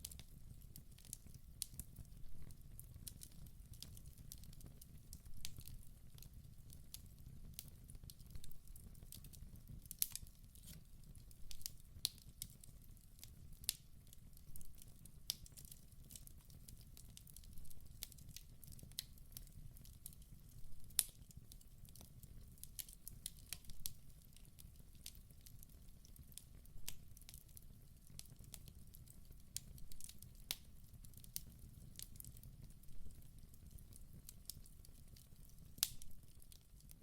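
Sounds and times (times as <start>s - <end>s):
wood fire crackling and popping: 0.0s - 37.0s
low rumble of flame: 28.1s - 37.0s.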